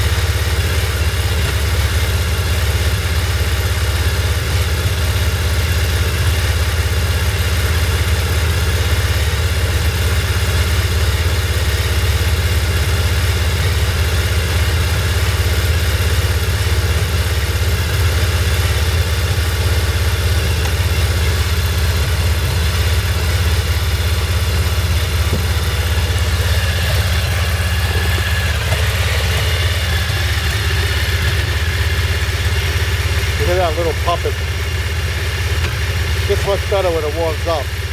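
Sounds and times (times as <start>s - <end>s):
motorcycle engine idling: 0.0s - 37.9s.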